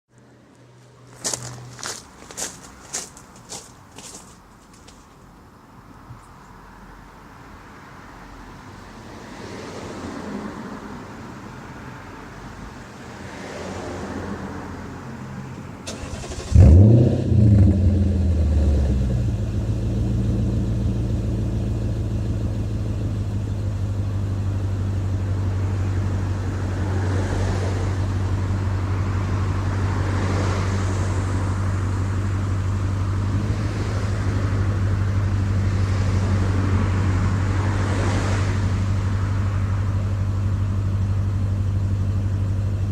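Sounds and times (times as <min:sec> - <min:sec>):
car engine starting and idling: 0:15.4 - 0:42.9
engine cranking: 0:15.9 - 0:17.0.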